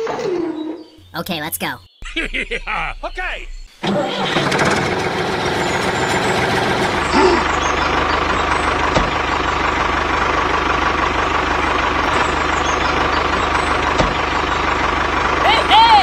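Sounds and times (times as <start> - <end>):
tractor engine chugging: 3.8 - 16.0.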